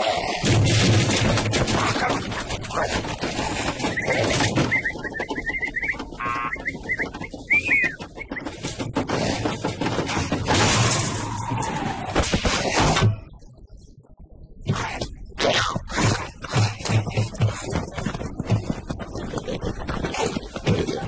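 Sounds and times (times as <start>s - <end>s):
cartoon clatter: 0.4s - 11.4s.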